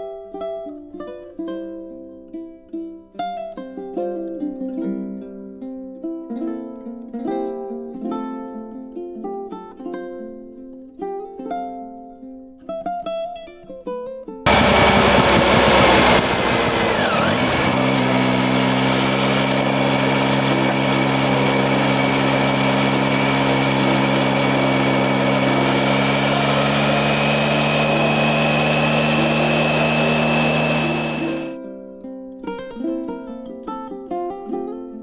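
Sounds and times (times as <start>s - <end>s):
motorcycle engine running: 14.5s - 31.6s
road noise: 14.5s - 31.6s.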